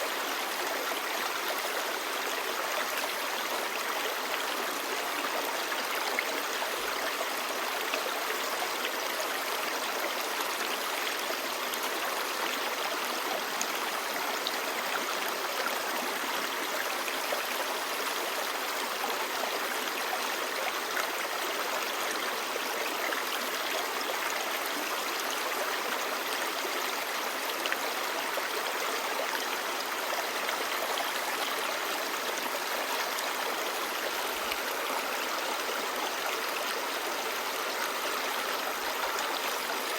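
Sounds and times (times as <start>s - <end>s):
stream babbling over rocks: 0.1s - 39.9s.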